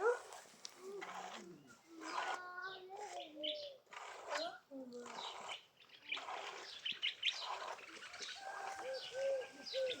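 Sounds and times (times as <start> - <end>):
small birds chirping: 1.2 - 10.0
dove cooing: 8.8 - 10.0.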